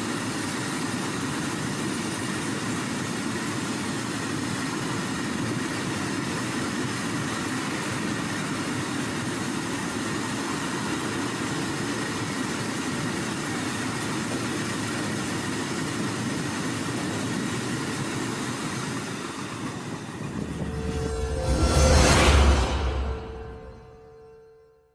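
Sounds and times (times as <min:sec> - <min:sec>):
freight train rolling past: 0:19.0 - 0:24.9.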